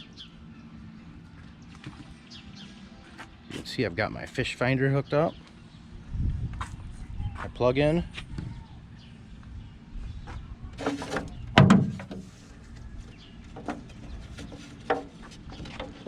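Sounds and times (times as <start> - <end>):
thud: 11.5 - 12.2.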